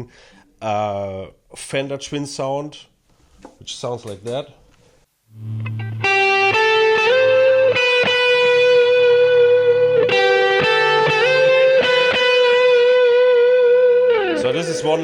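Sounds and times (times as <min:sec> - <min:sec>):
electric guitar slow lead line: 0:05.3 - 0:15.0.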